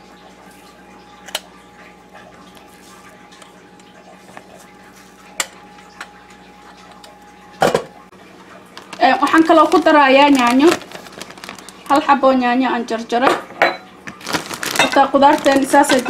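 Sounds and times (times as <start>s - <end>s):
faint steady hum: 0.0s - 16.0s
kitchen utensils clicking: 14.7s - 16.0s.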